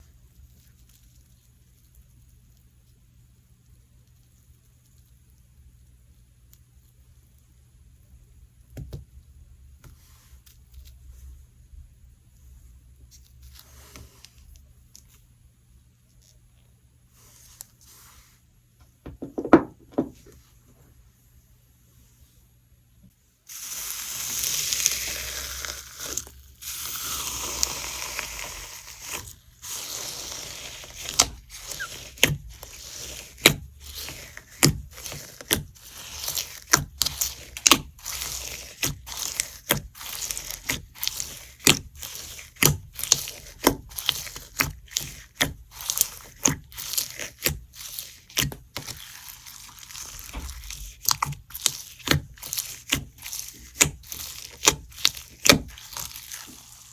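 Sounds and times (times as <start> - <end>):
slime crunching and crackling: 23.5 - 56.9.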